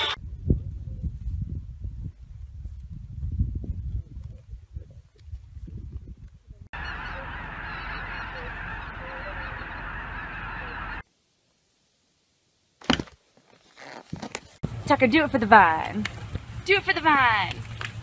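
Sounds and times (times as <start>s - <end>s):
geese honking in flight: 6.8s - 11.0s.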